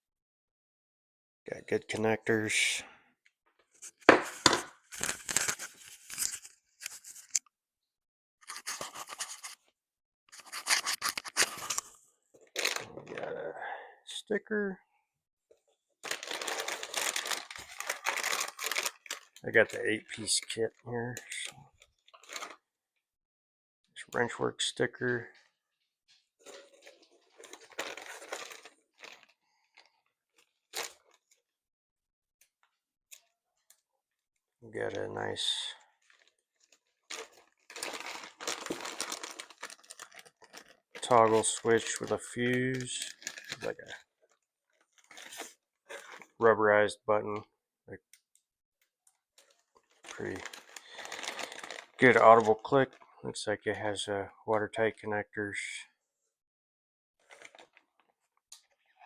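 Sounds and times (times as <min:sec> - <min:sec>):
packaging rustling and crinkling: 0:03.8 - 0:07.4, 0:10.4 - 0:13.3, 0:16.0 - 0:19.9, 0:21.8 - 0:22.6, 0:26.1 - 0:31.4, 0:35.8 - 0:46.4, 0:49.4 - 0:53.1, 0:57.2 - 0:59.0.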